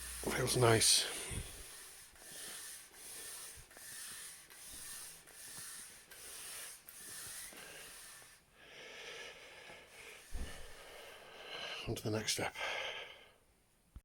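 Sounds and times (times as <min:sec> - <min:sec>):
piston rings rasping in bores: 0:00.0 - 0:08.3.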